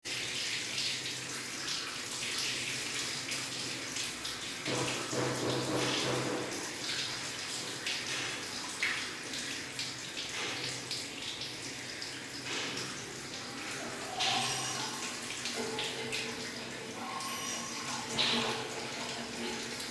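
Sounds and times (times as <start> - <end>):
rain falling and splashing: 9.7 - 19.9.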